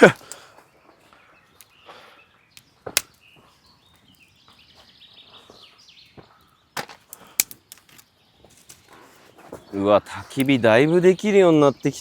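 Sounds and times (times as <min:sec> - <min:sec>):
birds chirping and singing: 0:00.0 - 0:12.0.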